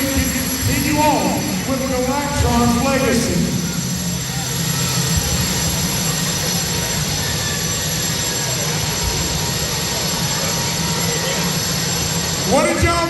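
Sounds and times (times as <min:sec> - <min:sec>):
loud mechanical drone: 0:00.0 - 0:13.0.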